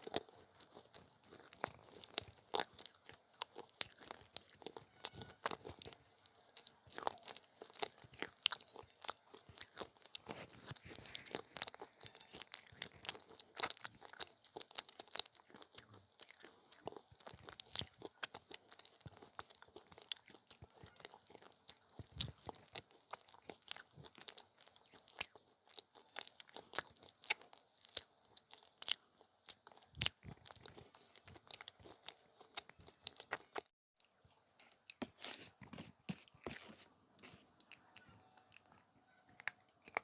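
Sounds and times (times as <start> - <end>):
person chewing brittle clay: 0.0 - 40.0.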